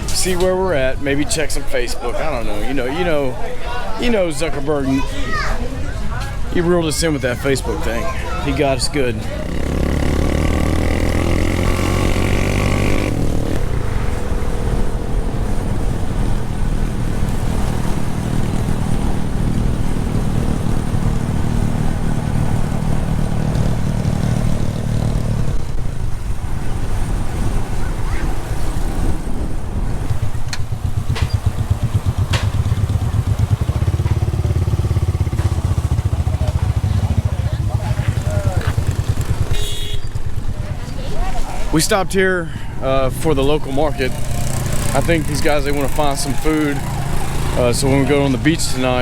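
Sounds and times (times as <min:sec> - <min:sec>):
motorcycle engine running: 0:09.1 - 0:41.0, 0:43.4 - 0:49.0.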